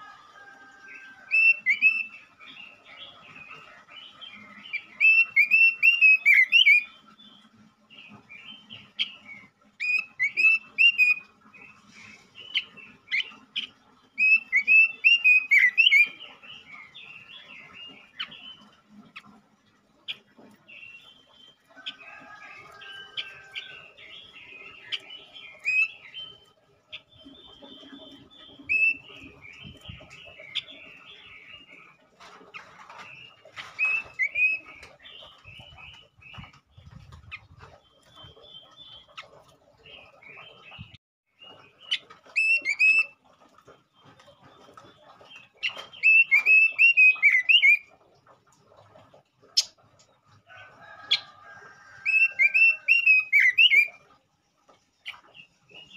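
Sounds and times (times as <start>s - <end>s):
bird singing warbled phrases: 44.0s - 47.9s.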